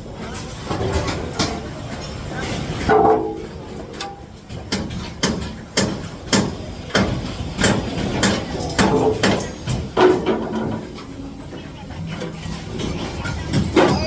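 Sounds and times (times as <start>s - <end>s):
hammer striking metal formwork: 2.9s - 10.9s.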